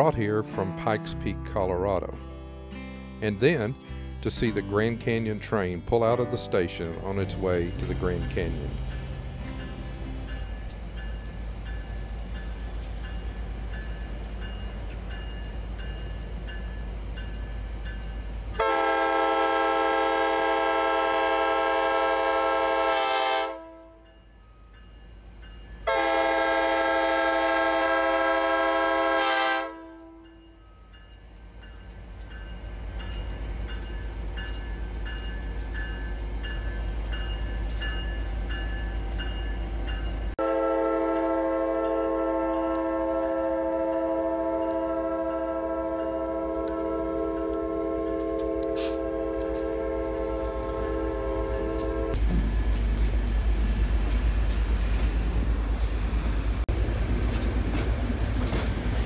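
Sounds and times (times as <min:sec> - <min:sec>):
locomotive engine rumble: 0:04.2 - 0:22.8
train horn blasts: 0:18.6 - 0:24.1, 0:25.8 - 0:30.4, 0:40.4 - 0:52.2.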